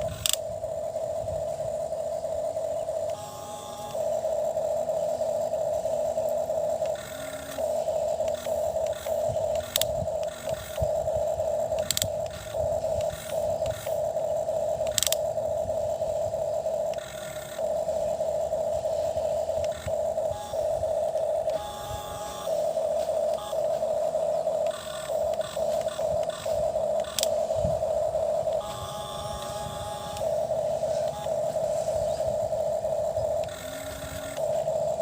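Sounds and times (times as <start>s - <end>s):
sharp gear clicks: 0.0s - 0.4s, 6.8s - 11.0s, 11.7s - 14.0s, 14.7s - 15.3s, 24.6s - 27.4s
toy electric motor whining: 0.0s - 35.0s.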